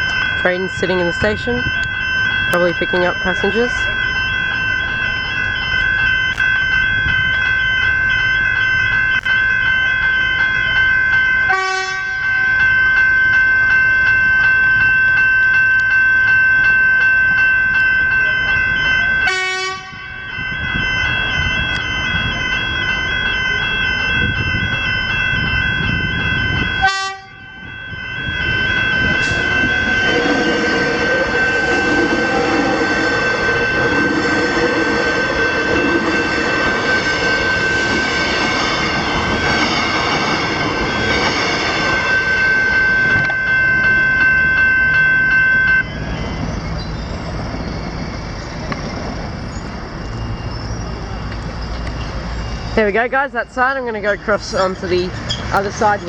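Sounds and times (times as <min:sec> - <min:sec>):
level crossing bells ringing: 0:00.0 - 0:48.6, 0:49.3 - 0:56.0
train rumbling and clattering past: 0:12.3 - 0:45.1.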